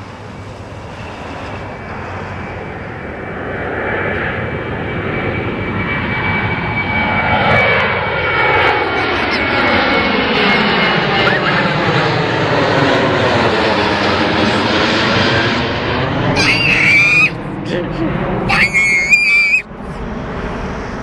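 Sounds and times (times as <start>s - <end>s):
airplane flying over: 0.0s - 21.0s
high engine whine: 0.0s - 21.0s.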